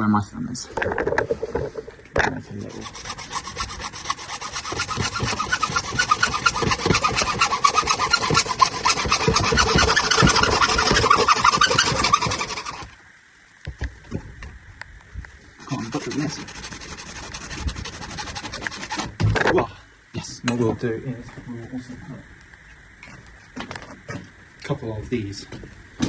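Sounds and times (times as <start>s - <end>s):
hand saw cutting pipe: 2.5s - 13.0s, 15.6s - 19.2s.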